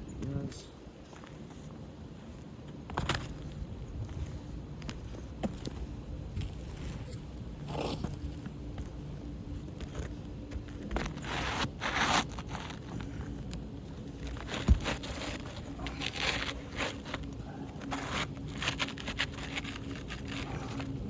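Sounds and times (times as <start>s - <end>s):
roof shingles scraping: 10.5s - 21.0s.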